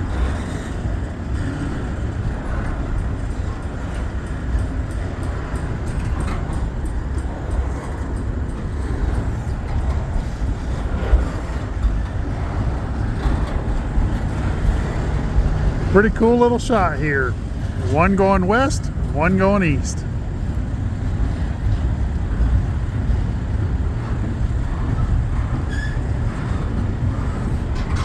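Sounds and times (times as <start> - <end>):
wheels rumbling on rails: 0.0 - 16.4, 20.0 - 28.0.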